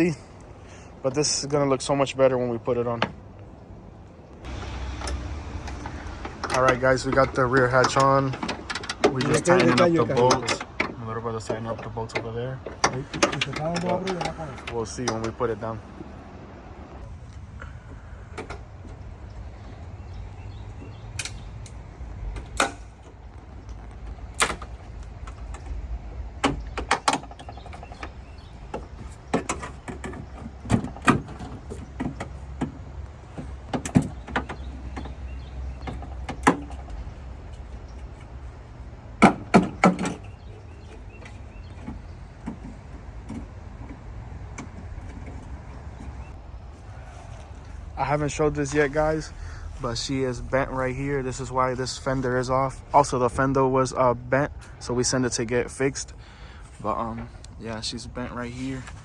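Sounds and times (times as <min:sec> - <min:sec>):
steady low hum: 0:12.8 - 0:59.0.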